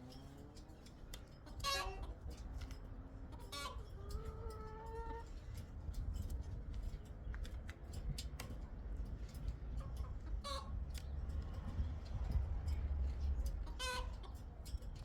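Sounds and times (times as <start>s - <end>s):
chicken clucking: 1.4s - 2.6s, 3.2s - 5.4s, 9.7s - 11.0s, 13.4s - 14.6s.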